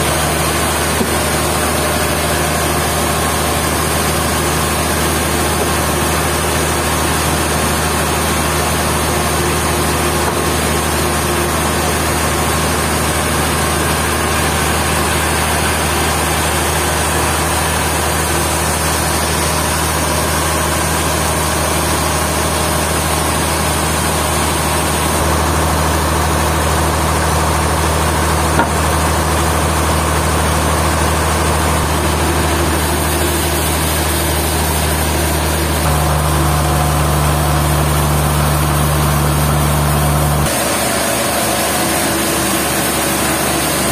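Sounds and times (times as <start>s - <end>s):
sawmill machinery drone: 0.0s - 43.9s.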